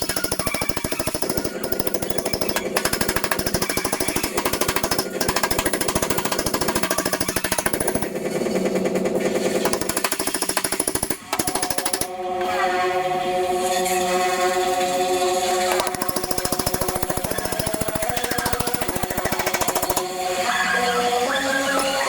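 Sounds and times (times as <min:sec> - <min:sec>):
power tool hammering sheet metal: 0:00.0 - 0:12.2, 0:15.7 - 0:20.3.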